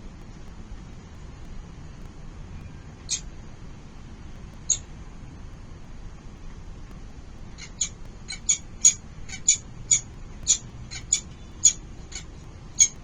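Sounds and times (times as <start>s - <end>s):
falcon chicks calling: 7.6s - 13.0s.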